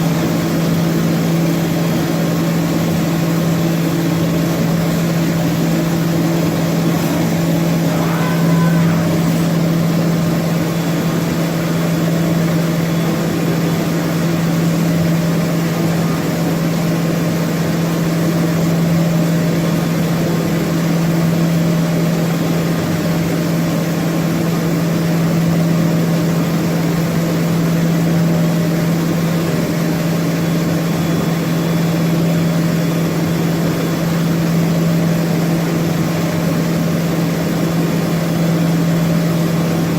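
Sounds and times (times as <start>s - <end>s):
machine humming: 0.0s - 12.9s.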